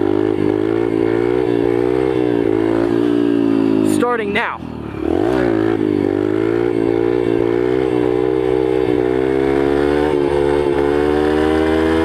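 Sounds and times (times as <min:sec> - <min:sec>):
motorcycle engine revving high: 0:00.0 - 0:12.0.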